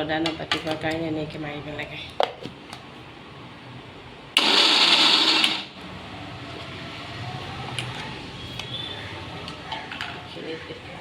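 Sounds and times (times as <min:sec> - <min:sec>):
mixer grinder grinding nuts: 0:04.4 - 0:05.8.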